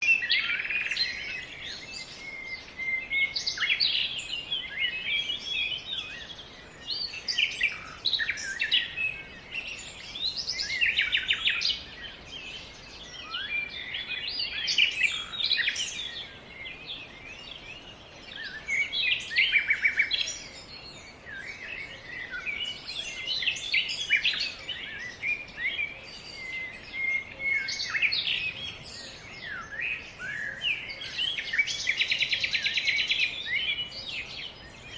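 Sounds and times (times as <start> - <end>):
birds chirping and trilling: 0.0 - 34.9.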